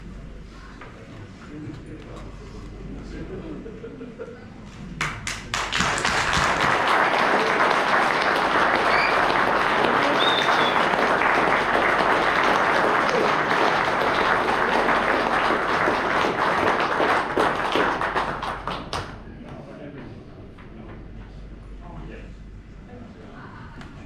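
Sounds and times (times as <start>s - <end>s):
audience applauding: 5.0s - 19.2s.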